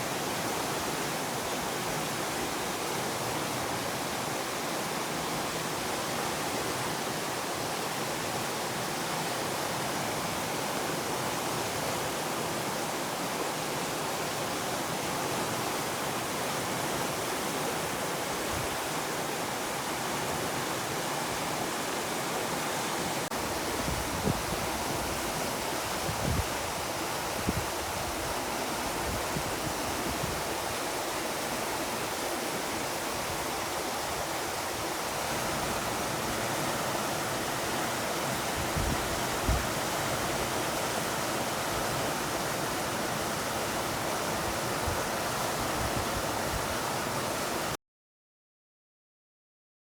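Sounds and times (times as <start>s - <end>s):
fast river rushing: 0.0s - 47.8s.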